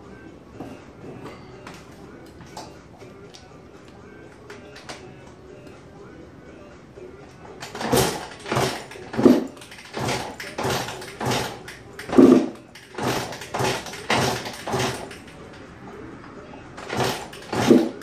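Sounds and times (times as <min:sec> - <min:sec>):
motorcycle engine kick-starting: 0:07.6 - 0:15.6, 0:16.7 - 0:18.0.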